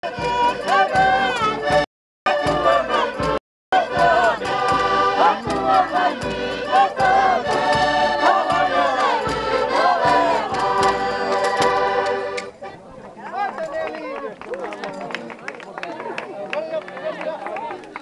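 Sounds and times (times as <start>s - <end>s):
music: 0.0s - 12.6s
group of voices singing loudly: 0.1s - 12.4s.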